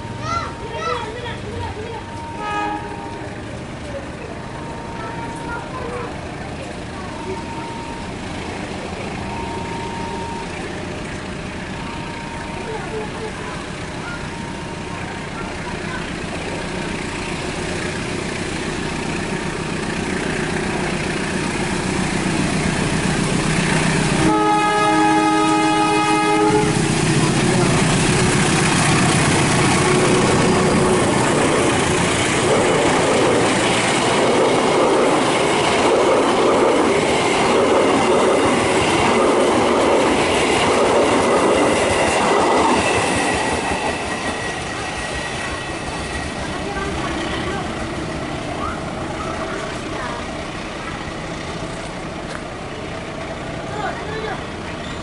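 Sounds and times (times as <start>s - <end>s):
train cars rumbling on rails: 0.0s - 55.0s
train horn blast: 2.3s - 3.4s, 24.2s - 27.4s.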